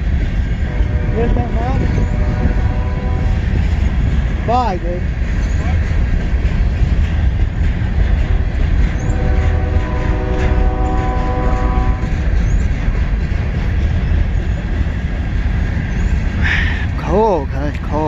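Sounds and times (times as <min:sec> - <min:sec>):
freight train rumbling past: 0:00.0 - 0:18.0
locomotive horn blast: 0:00.7 - 0:03.6, 0:09.0 - 0:12.2.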